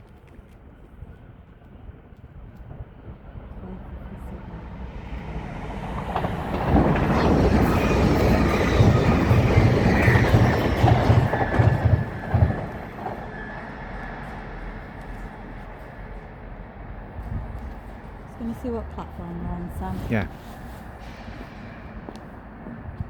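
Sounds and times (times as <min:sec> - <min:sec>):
train passing on rails: 0:00.1 - 0:23.0
wheels clacking over rail joints: 0:05.2 - 0:13.5.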